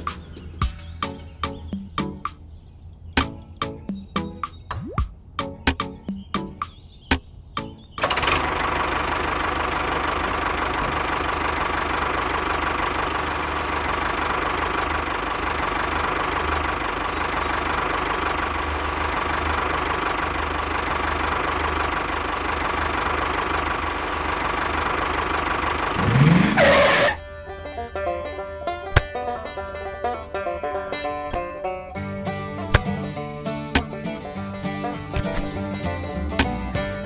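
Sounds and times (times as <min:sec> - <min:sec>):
diesel engine idling: 0:08.0 - 0:37.0
rising engine whine: 0:08.2 - 0:27.8.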